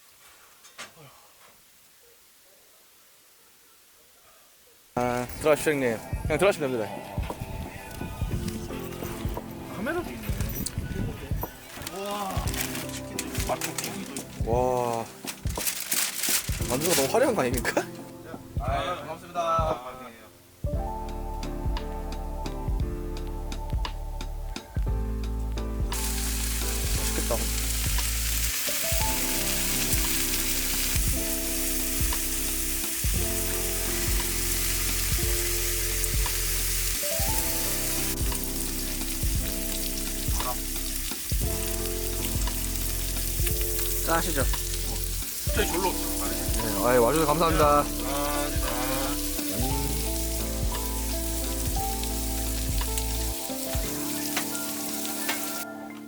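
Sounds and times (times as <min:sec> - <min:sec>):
soft background music: 0:05.0 - 0:56.0
crackling hiss with ticks: 0:07.2 - 0:17.8, 0:24.5 - 0:56.0
food sizzling in a hot pan: 0:25.9 - 0:55.7.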